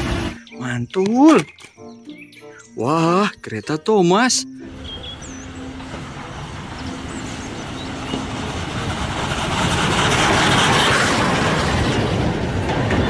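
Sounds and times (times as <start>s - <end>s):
train wheels rumbling and clattering: 4.7s - 13.0s.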